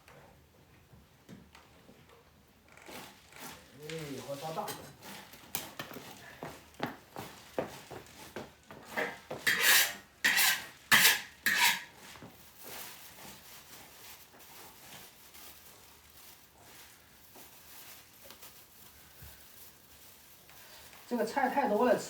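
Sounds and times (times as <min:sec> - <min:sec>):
metal spatula scraping a wok: 0:08.9 - 0:12.0.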